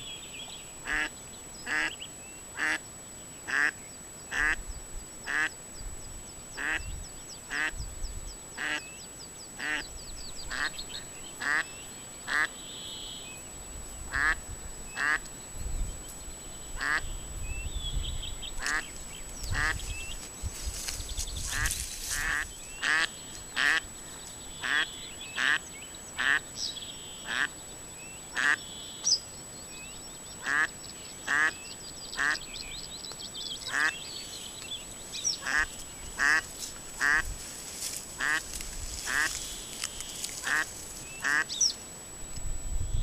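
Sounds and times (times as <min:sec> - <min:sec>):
small birds chirping: 0:00.0 - 0:41.8
bird rasping calls: 0:09.6 - 0:12.6, 0:20.8 - 0:23.9, 0:30.4 - 0:31.6, 0:32.2 - 0:32.4, 0:33.6 - 0:34.1, 0:35.2 - 0:41.7.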